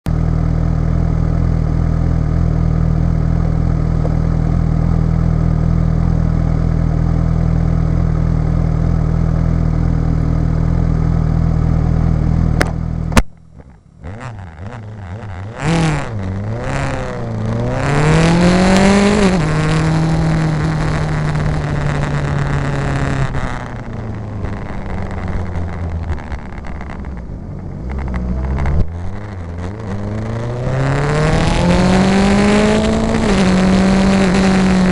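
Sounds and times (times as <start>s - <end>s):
vehicle engine idling: 0.1s - 17.7s, 20.8s - 29.8s
engine revving and accelerating: 14.0s - 27.2s, 27.8s - 34.9s.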